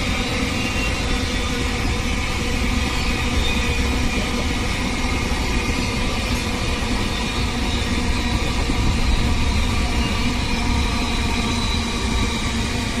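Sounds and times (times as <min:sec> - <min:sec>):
freight train rumbling past: 0:00.0 - 0:13.0.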